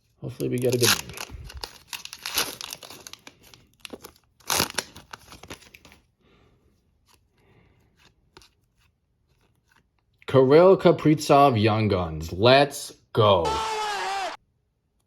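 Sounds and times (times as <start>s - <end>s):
plastic wrapper tearing: 0.3s - 6.0s
plastic wrapper rustling: 0.3s - 6.1s.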